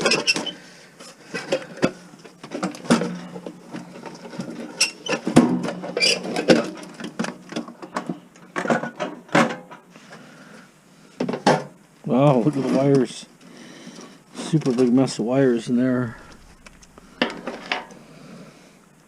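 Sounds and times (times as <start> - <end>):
faint low hum: 5.4 - 19.0.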